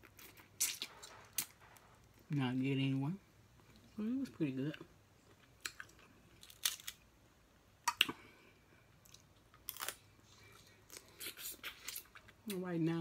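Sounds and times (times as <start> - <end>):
person chewing with mouth clicks: 9.0 - 12.5.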